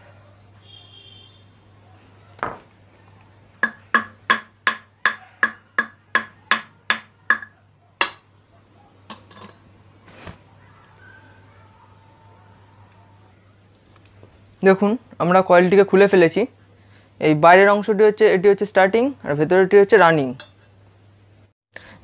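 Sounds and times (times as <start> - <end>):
hammer striking metal: 3.6 - 8.2.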